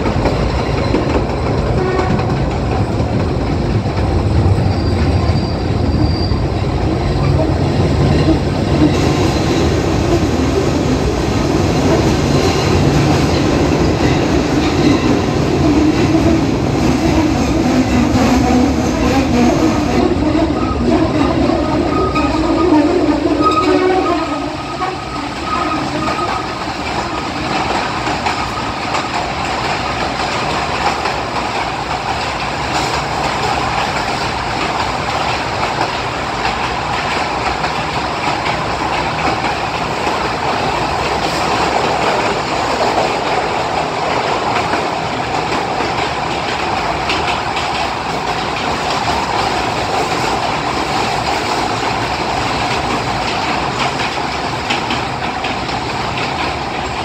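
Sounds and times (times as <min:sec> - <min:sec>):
train moving on rails in tunnel: 0:00.0 - 0:57.0.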